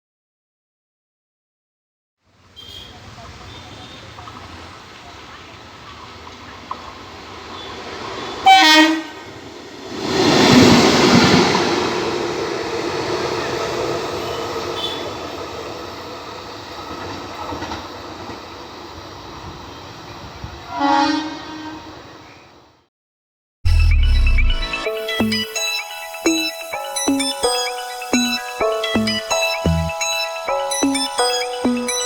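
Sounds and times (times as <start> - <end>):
train rumbling past: 4.2 - 22.3
train horn blasts: 8.4 - 9.4, 14.2 - 15.4, 20.7 - 22.0.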